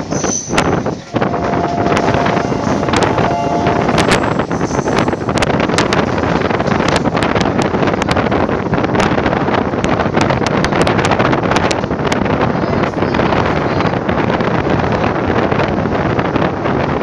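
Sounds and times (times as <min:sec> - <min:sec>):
train rumble: 0:00.0 - 0:17.0
wind blowing on microphone: 0:00.0 - 0:17.0
wheels clicking on track: 0:03.8 - 0:15.6.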